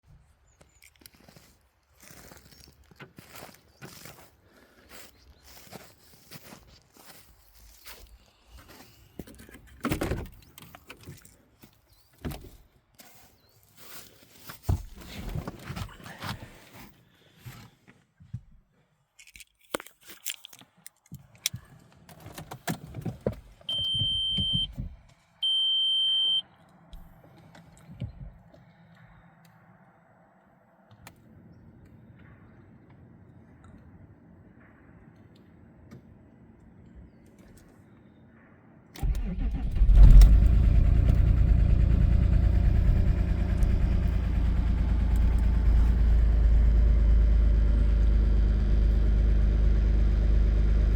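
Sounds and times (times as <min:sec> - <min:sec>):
clicking handling noises: 0:00.6 - 0:04.2, 0:19.1 - 0:24.7
footsteps: 0:00.8 - 0:09.5
keys rattling: 0:19.2 - 0:21.6.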